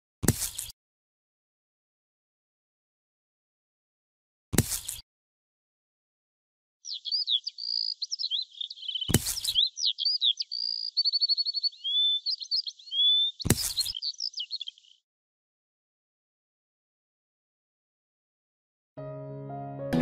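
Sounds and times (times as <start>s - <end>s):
songbird singing: 6.8s - 15.0s.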